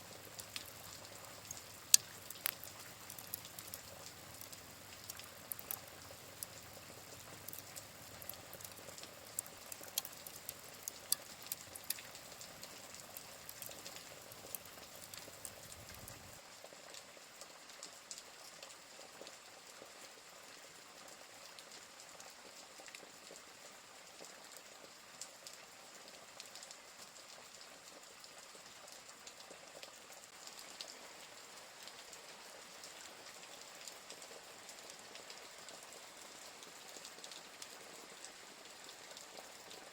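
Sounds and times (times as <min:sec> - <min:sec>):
wood fire crackling: 0:00.0 - 0:16.4
steady rain: 0:00.0 - 0:39.9.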